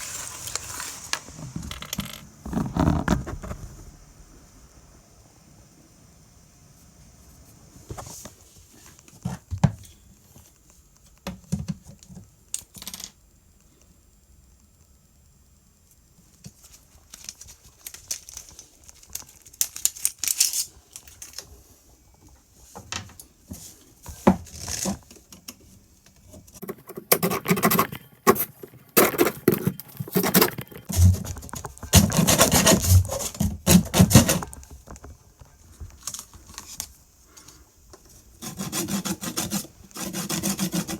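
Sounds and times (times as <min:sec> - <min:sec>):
knocks and handling noises: 0:22.2 - 0:36.9.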